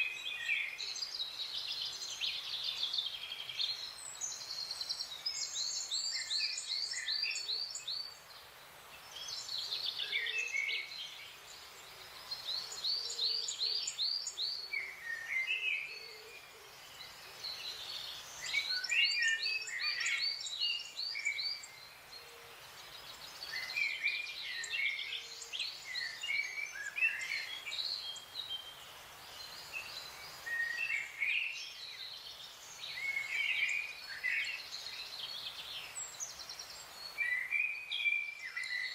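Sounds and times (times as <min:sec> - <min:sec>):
forest songbirds singing: 0:00.0 - 0:38.9
soft steady background hiss: 0:00.0 - 0:38.9
bird chirps: 0:12.1 - 0:38.9.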